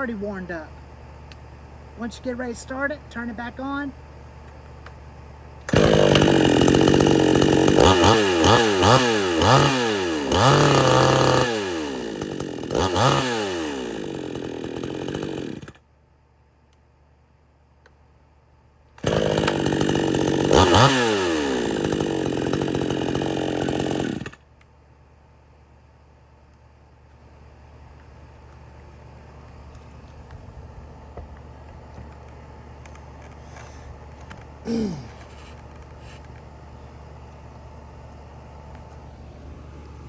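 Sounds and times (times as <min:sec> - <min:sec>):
chainsaw starting and revving: 0:05.6 - 0:15.8, 0:19.0 - 0:24.5, 0:34.6 - 0:36.2.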